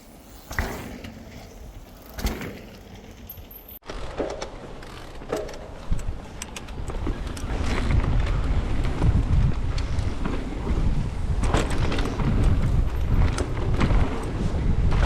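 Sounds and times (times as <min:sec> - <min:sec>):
bike rattling and knocking: 0:01.9 - 0:15.0
wind buffeting microphone: 0:05.8 - 0:15.0.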